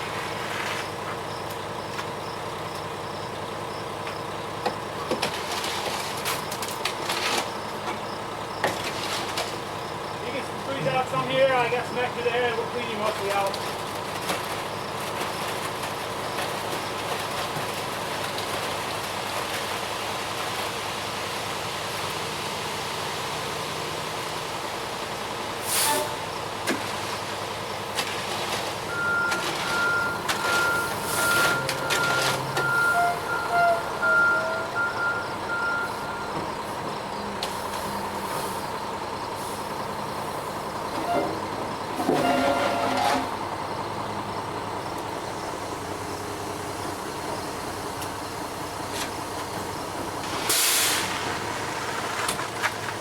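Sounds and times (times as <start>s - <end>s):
concrete truck engine running: 0.0s - 53.0s
truck backup alarm beeping: 28.7s - 48.8s.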